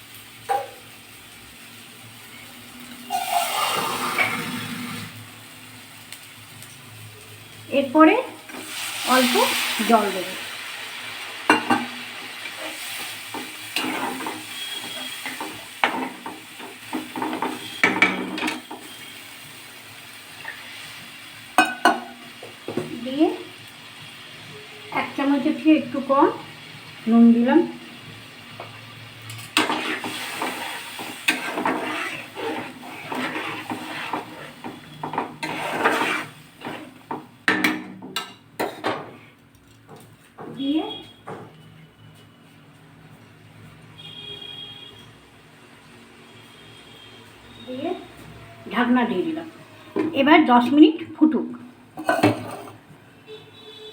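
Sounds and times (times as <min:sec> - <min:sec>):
food sizzling: 0:00.0 - 0:41.2, 0:44.0 - 0:53.9
spatula scraping in a pan: 0:03.0 - 0:05.2, 0:11.5 - 0:19.6, 0:28.6 - 0:39.3.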